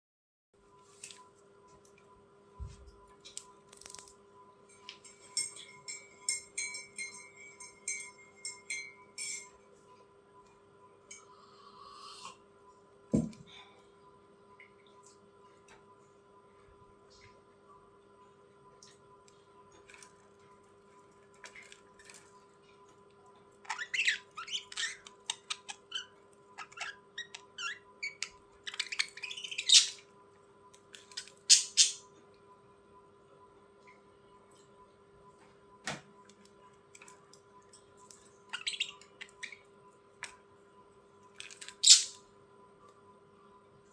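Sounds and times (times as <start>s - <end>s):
faint steady hum: 0.6s - 43.9s
budgerigars chirping: 26.6s - 30.0s, 31.5s - 32.0s, 41.8s - 42.2s.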